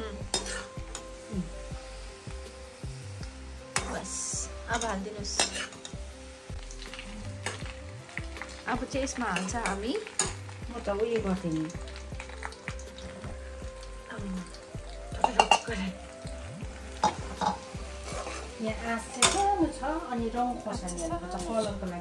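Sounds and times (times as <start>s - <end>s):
ginger and garlic sizzling in oil: 0.0s - 22.0s
spatula clinking: 0.3s - 1.1s, 4.7s - 6.1s, 6.8s - 8.6s, 15.2s - 15.7s, 17.0s - 19.6s
steel spatula scraping pan: 5.4s - 5.9s, 17.4s - 18.5s.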